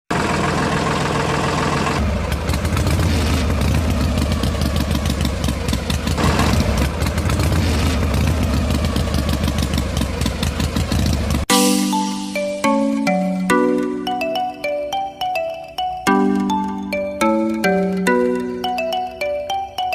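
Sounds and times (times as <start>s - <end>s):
engine running with rattle: 0.1s - 11.5s.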